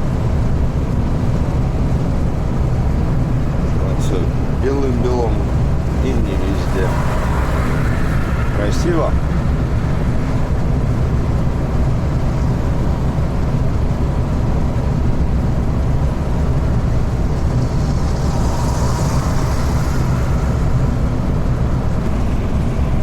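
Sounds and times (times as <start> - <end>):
truck diesel engine rumble: 0.0 - 23.0.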